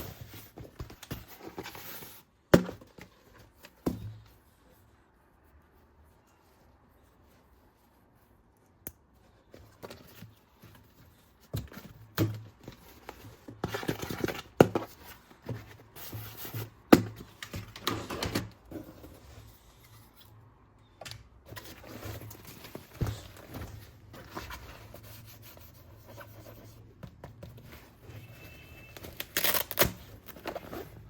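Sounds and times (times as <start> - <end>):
packaging rustling: 28.0 - 31.0.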